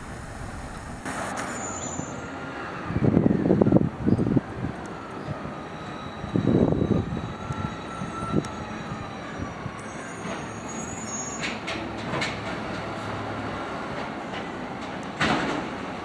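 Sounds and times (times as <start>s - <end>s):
faint wavering whine: 0.0s - 1.9s.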